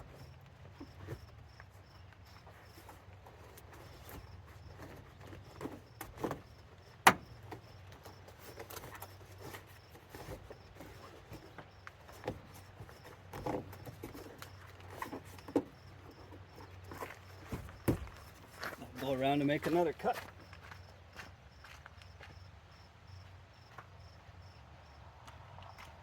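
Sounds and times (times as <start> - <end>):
knocks and scrapes of hand work: 2.3 - 18.9.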